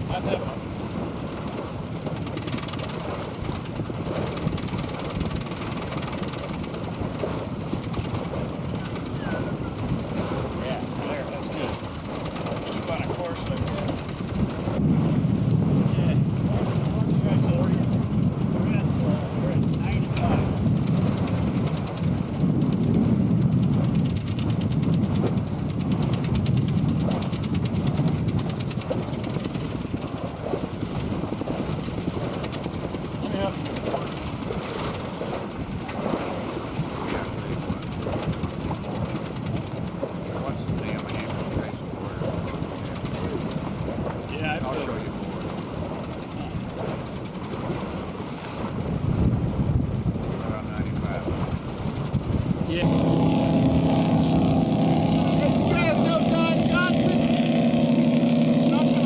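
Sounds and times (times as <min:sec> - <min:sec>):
water rushing along hull: 0:00.0 - 0:59.0
wind buffeting microphone: 0:00.0 - 0:59.0.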